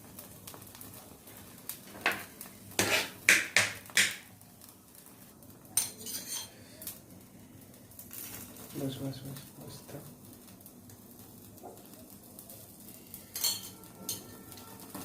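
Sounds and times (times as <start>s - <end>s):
metal utensils and dishes clinking: 2.0s - 4.2s, 5.8s - 6.6s, 13.2s - 15.0s.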